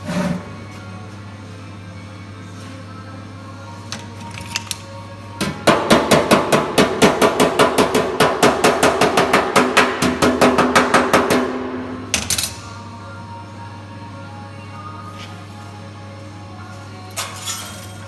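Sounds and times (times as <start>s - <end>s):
background music: 0.0s - 18.0s
hammer blows on sheet steel: 5.4s - 12.0s.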